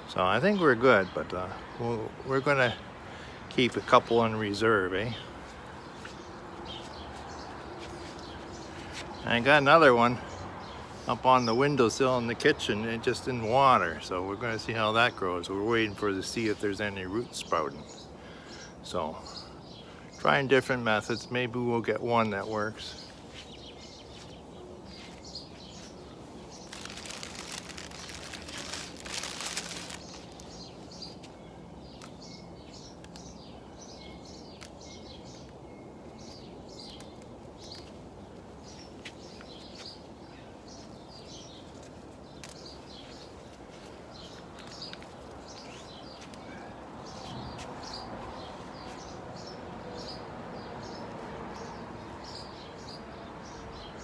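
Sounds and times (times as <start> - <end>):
small birds chirping: 0.0 - 54.0
rustling noise: 5.4 - 9.2, 23.1 - 31.3, 41.5 - 46.4.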